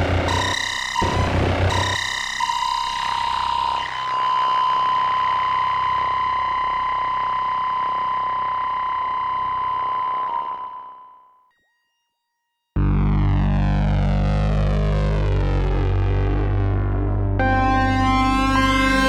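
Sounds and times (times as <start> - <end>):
sustained high synthesizer note: 0.0 - 2.1, 12.8 - 19.0.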